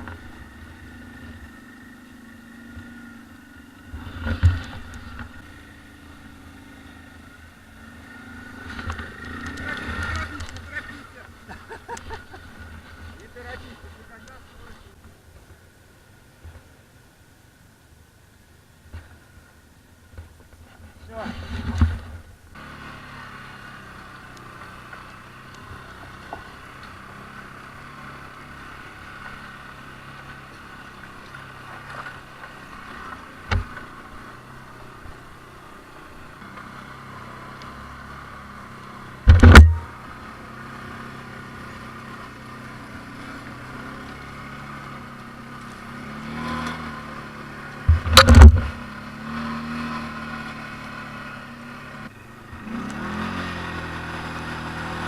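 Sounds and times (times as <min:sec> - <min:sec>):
atv engine idling at low revs: 0:00.0 - 0:55.0
loud thumps: 0:39.2 - 0:40.0, 0:47.9 - 0:48.8.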